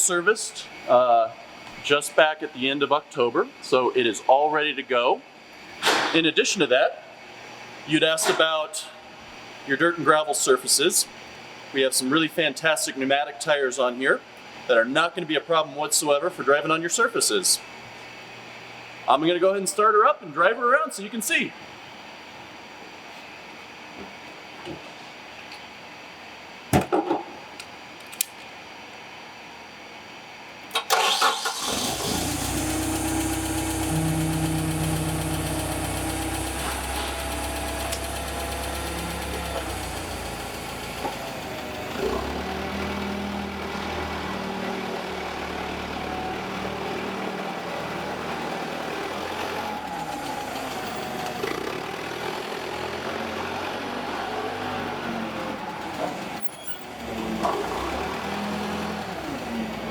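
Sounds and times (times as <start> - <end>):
forklift engine cranking and idling: 30.7 - 59.9.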